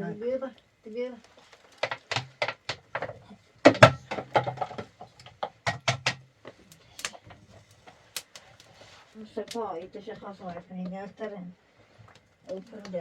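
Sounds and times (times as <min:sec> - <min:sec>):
objects knocking and clattering: 0:01.6 - 0:08.0.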